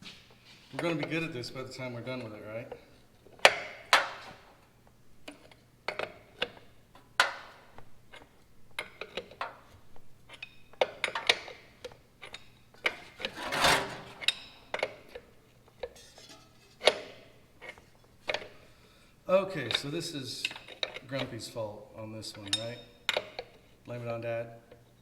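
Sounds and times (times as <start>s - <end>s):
metal scraping: 13.0s - 14.8s
metal parts clinking and knocking: 13.2s - 14.5s.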